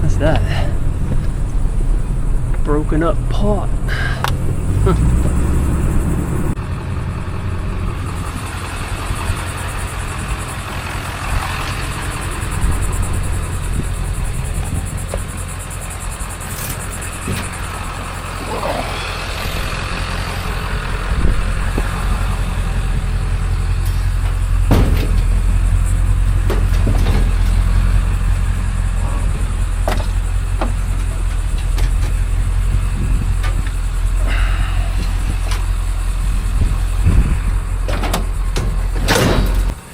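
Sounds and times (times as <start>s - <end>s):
road noise: 0.0s - 39.9s
vehicle engine rumble: 0.0s - 39.9s
knocks and rattles: 9.2s - 39.8s.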